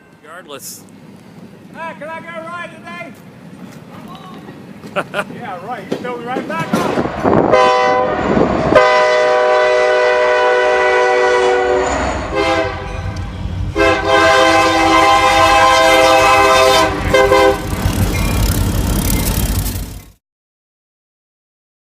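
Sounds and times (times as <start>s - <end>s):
train rumbling past: 0.0s - 20.2s
locomotive air horn blasts: 7.4s - 17.8s.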